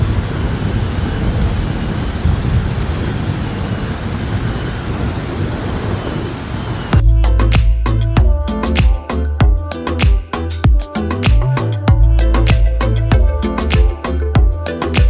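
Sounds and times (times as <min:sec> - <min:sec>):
heavy rain: 0:00.0 - 0:07.0
thunder rumble: 0:00.0 - 0:07.2.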